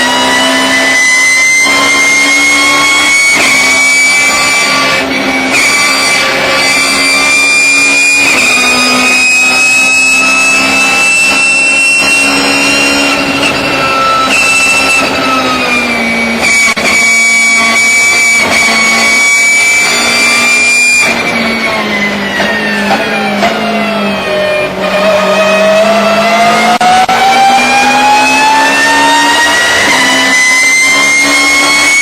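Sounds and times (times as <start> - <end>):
high gear whine: 0.0 - 32.0
race car engine at speed: 0.0 - 32.0.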